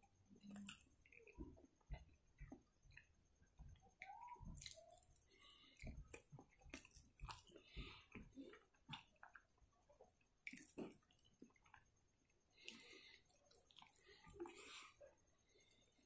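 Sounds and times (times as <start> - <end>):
chewing: 0.3 - 16.0
wet mouth clicks and smacks: 5.8 - 9.4, 10.4 - 11.8.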